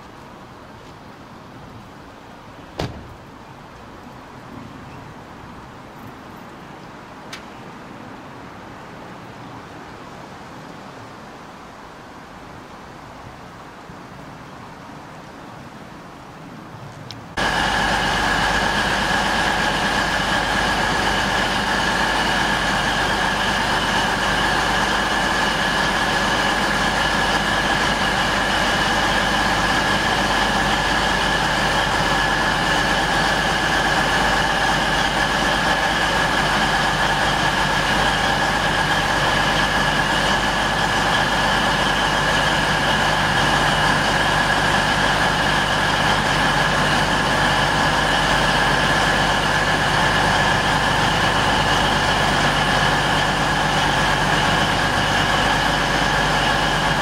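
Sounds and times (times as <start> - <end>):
diesel train engines idling: 0.0 - 7.5, 17.3 - 57.0
low hum: 17.4 - 57.0.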